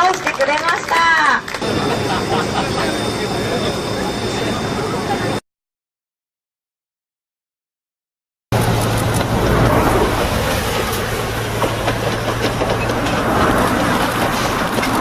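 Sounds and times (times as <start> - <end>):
train rattling on track: 0.0 - 5.4, 8.6 - 15.0.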